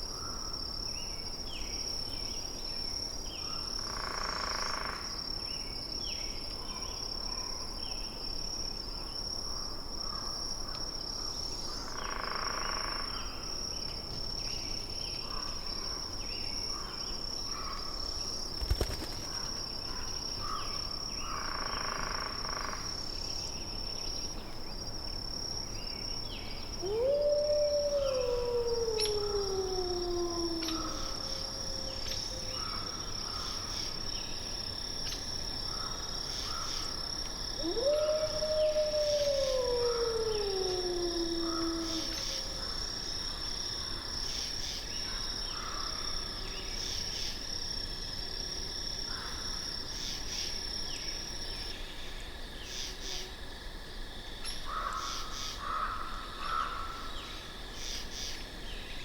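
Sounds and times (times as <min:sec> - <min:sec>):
long howl falling in pitch: 0:26.8 - 0:33.0, 0:37.6 - 0:42.9.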